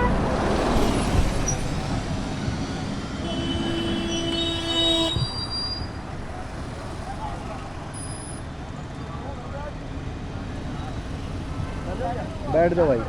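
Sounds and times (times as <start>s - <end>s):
long horn blast: 0.0s - 0.6s, 3.1s - 5.4s
road traffic noise: 0.0s - 13.0s.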